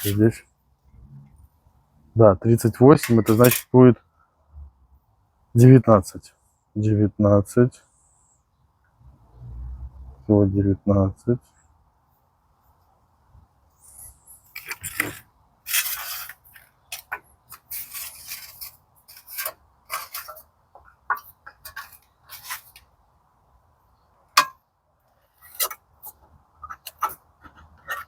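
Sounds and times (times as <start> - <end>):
metal tools scraping sheet steel: 0.0 - 0.4, 2.8 - 3.8, 13.8 - 20.5.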